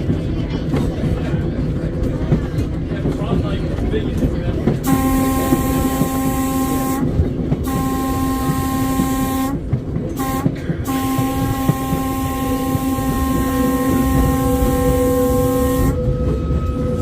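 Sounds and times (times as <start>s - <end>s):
trolley car rumbling on rails: 0.0s - 17.0s
trolley car horn blasts: 4.8s - 17.0s.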